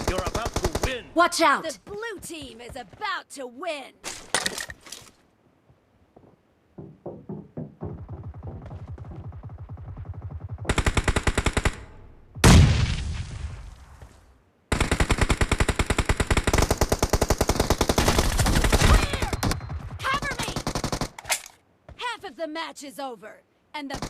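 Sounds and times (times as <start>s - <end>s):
automatic gunfire: 9.6s - 11.8s.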